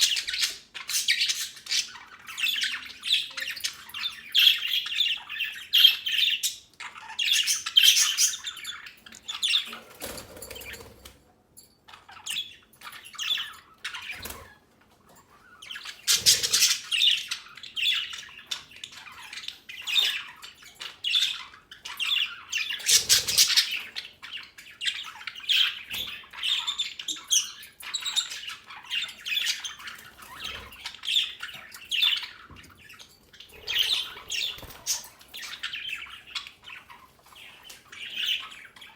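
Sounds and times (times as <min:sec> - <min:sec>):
budgies chirping and squawking: 0:00.0 - 0:11.2, 0:11.9 - 0:38.9.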